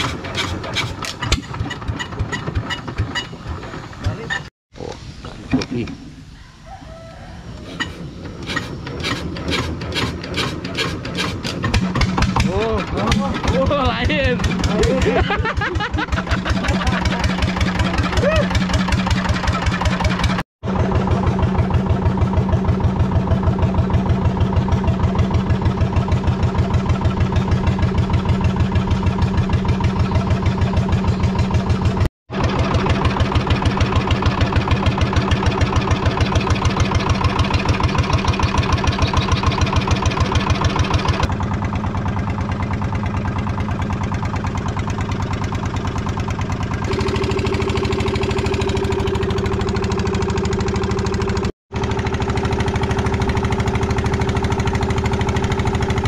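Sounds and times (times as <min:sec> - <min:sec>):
small boat engine pulsing: 0:07.7 - 0:56.0.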